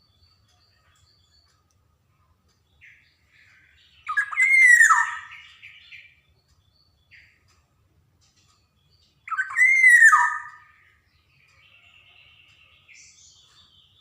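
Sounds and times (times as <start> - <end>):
bird calling falling notes: 4.1 - 5.4, 9.3 - 10.7.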